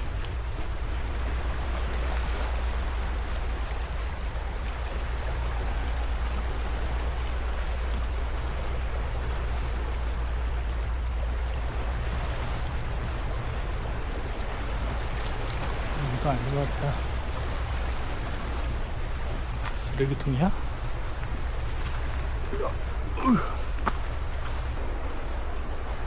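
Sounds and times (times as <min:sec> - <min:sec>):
wind noise on microphone: 0:00.0 - 0:20.0.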